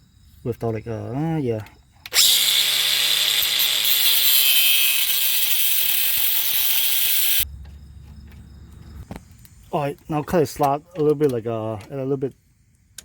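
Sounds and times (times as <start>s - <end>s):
angle grinder cutting metal: 2.1s - 7.4s.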